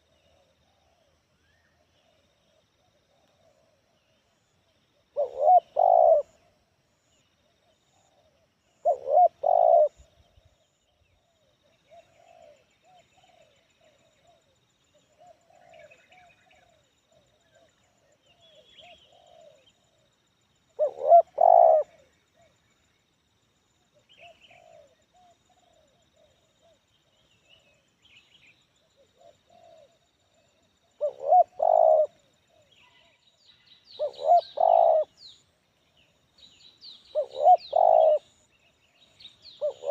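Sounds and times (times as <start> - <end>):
small birds chirping: 0.0 - 6.5, 7.1 - 20.0, 20.6 - 23.0, 24.0 - 39.9
dove cooing: 5.1 - 6.5, 7.6 - 10.4, 11.6 - 19.8, 20.7 - 22.5, 24.0 - 26.9, 28.9 - 33.2, 33.9 - 35.3, 37.1 - 39.9.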